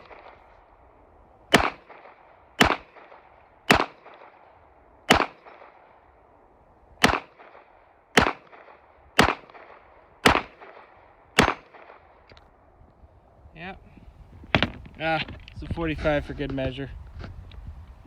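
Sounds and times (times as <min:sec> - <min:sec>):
pistol shots with echo: 0:00.0 - 0:00.6, 0:01.5 - 0:06.4, 0:07.0 - 0:12.3.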